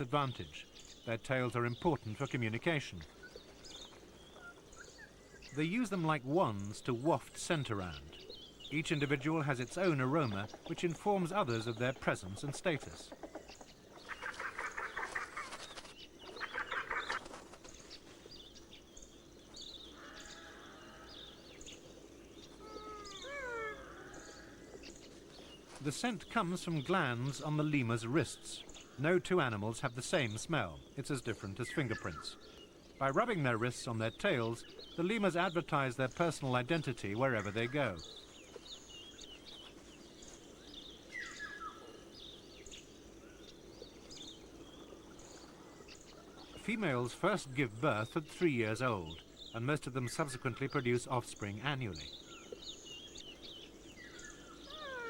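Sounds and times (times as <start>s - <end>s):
low steady background: 0.0s - 55.0s
small birds chirping: 0.0s - 55.0s
lemur bleat-like call: 20.0s - 21.4s, 22.6s - 24.6s, 54.7s - 55.0s.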